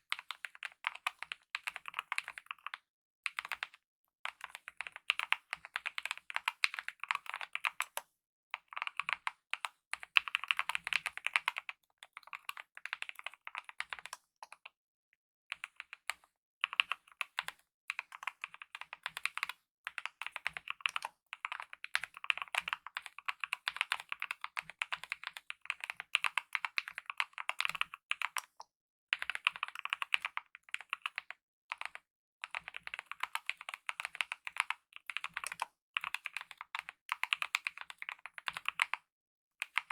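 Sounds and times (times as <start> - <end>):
typing on mechanical keyboard: 0.1 - 14.7, 15.5 - 39.9.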